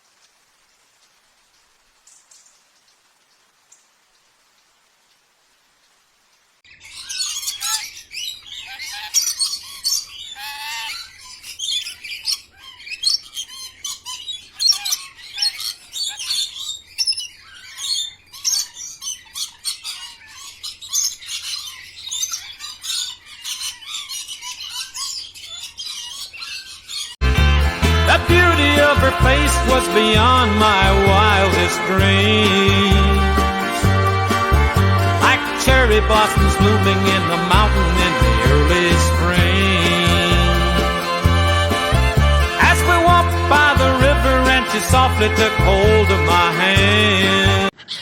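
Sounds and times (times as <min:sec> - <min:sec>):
birds chirping and squawking: 0:06.7 - 0:27.2, 0:27.9 - 0:48.0
music: 0:27.2 - 0:47.7.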